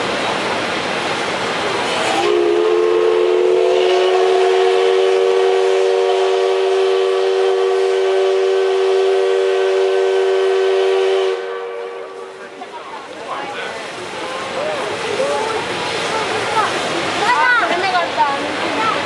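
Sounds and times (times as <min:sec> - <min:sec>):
loud steam hiss: 0:00.0 - 0:19.0
steam locomotive whistle blast: 0:01.9 - 0:12.4.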